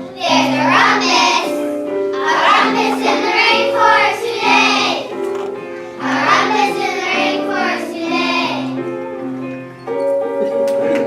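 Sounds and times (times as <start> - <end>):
children singing: 0.0 - 5.2, 5.9 - 9.0
musical accompaniment: 0.0 - 11.0.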